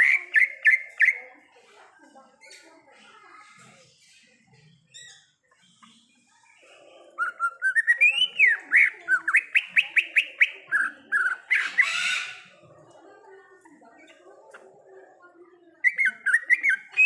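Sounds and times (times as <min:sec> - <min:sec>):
bird singing whistled notes: 0:07.2 - 0:08.6.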